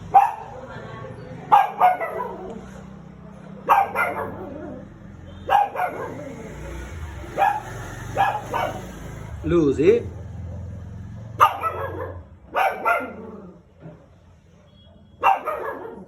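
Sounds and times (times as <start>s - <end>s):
small dog barking: 0.1s - 0.7s, 1.5s - 2.6s, 3.6s - 6.4s, 7.3s - 9.0s, 11.4s - 13.6s, 14.6s - 16.0s.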